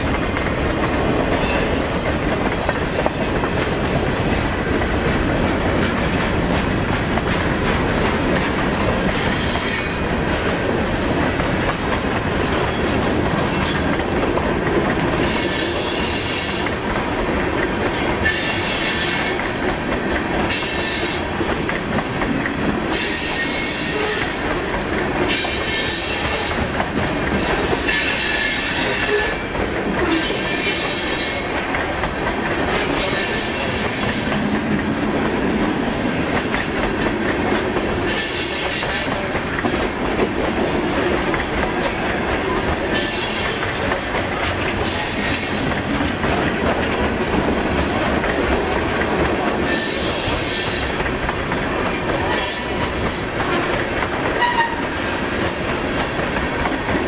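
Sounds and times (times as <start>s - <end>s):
freight train rumbling: 0.0s - 57.0s
wheels clacking over rail joints: 0.0s - 57.0s
high-pitched wheel squeal: 52.3s - 52.9s.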